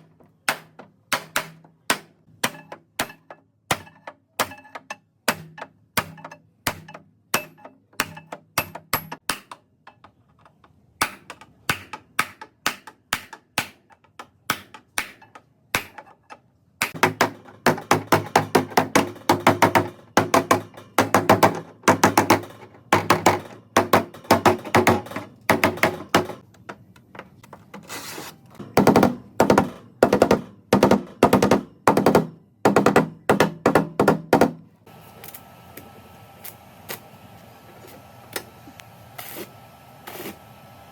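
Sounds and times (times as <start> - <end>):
hammer striking sheet metal: 16.8 - 26.4.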